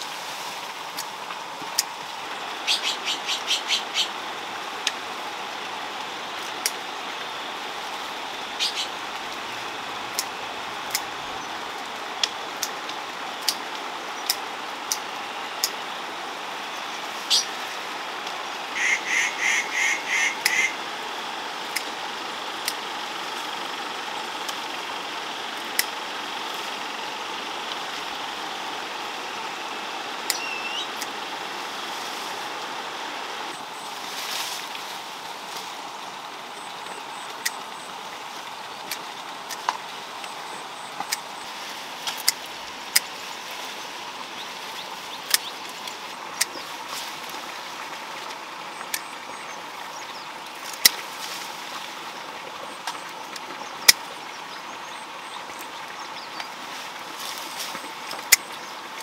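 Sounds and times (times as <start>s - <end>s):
steady outdoor hiss: 0.0s - 59.0s
bird calling rapidly: 1.8s - 5.6s, 6.2s - 11.8s, 13.4s - 18.0s, 18.6s - 21.0s, 26.6s - 31.8s
sharp clicks: 38.8s - 41.3s.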